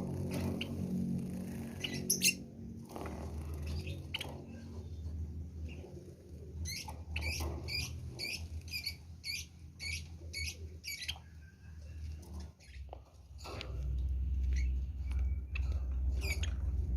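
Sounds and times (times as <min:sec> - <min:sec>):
steady low hum: 0:00.0 - 0:16.9
bird chirping: 0:01.6 - 0:02.5, 0:03.4 - 0:05.9, 0:06.6 - 0:13.0, 0:14.3 - 0:16.9.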